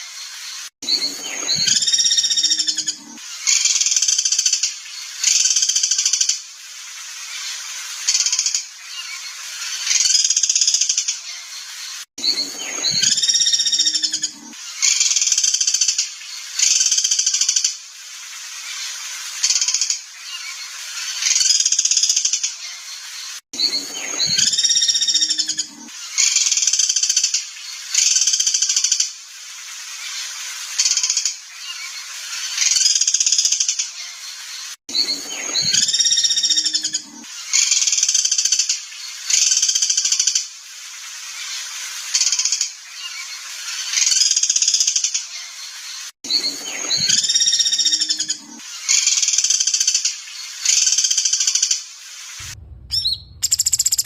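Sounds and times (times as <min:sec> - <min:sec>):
recorded songbird song: 0:00.0 - 0:54.0.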